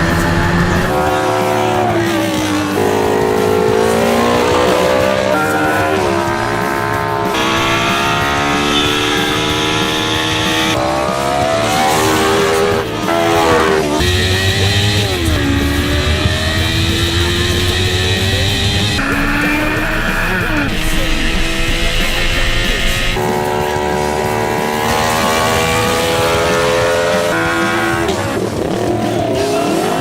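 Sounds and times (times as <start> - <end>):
motorcycle engine revving: 0.0 - 30.0
music playing: 0.0 - 30.0.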